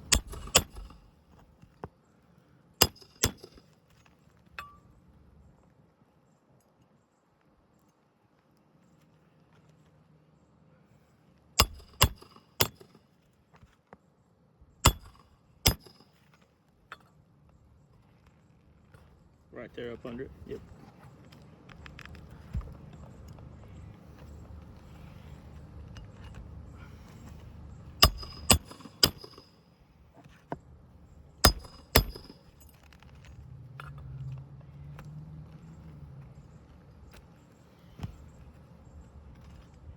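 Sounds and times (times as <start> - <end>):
hammer striking nails: 0.0 - 1.0, 2.8 - 3.6, 11.6 - 13.0, 14.8 - 16.1, 28.0 - 29.5, 31.4 - 32.7.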